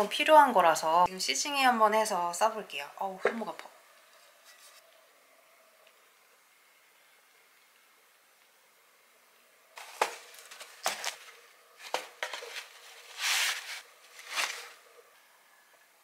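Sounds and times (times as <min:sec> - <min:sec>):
cardboard crinkling rustles: 0:09.8 - 0:14.8.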